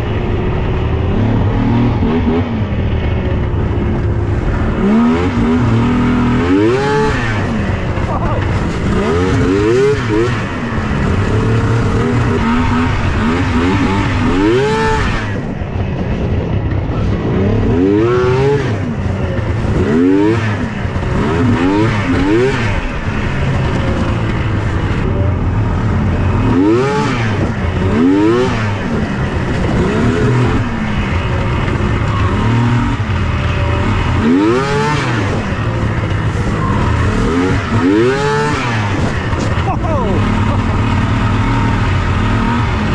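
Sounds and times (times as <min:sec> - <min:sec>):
low rumble: 0:00.0 - 0:42.9
snowmobile engine revving: 0:00.0 - 0:42.9.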